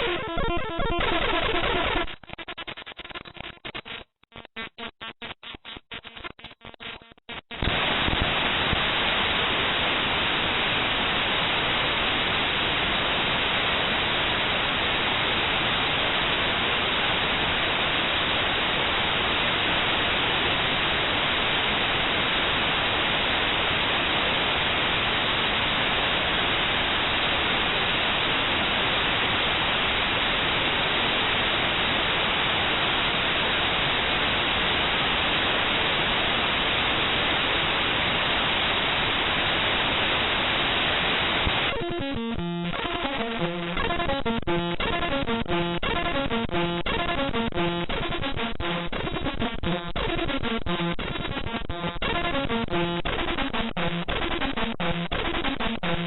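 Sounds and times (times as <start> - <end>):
choppy stuttering digital bursts: 0.0 - 7.9, 41.4 - 56.0
loud static hiss: 0.0 - 56.0.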